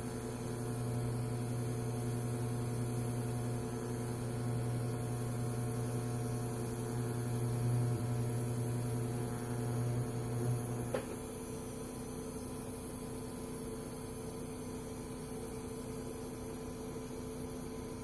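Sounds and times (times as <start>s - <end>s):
welding arc buzzing: 0.0s - 12.5s
welding machine hum: 0.0s - 18.0s.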